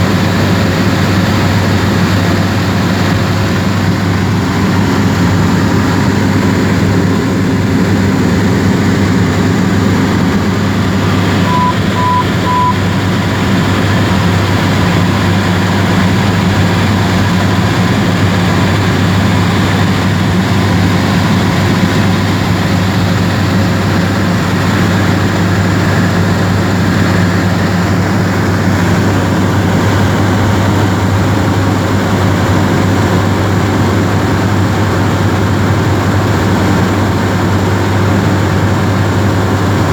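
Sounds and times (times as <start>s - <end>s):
aircraft engine and propeller droning: 0.0s - 39.9s
short beeps: 11.4s - 12.8s.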